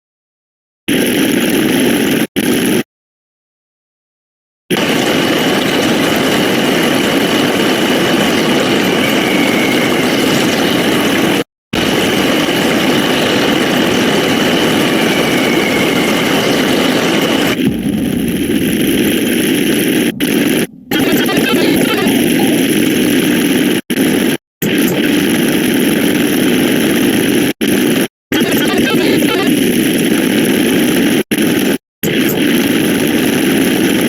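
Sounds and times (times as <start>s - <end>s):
harsh distorted noise: 0.9s - 2.9s, 4.7s - 34.0s.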